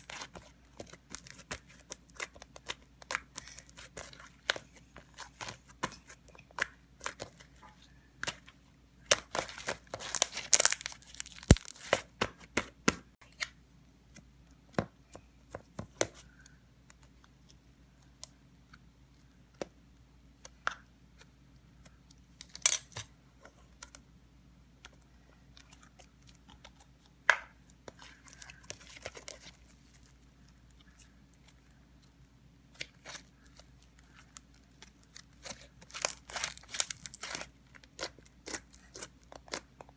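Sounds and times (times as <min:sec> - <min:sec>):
slime stretched and pressed by hand: 0:09.2 - 0:12.0, 0:32.7 - 0:39.6.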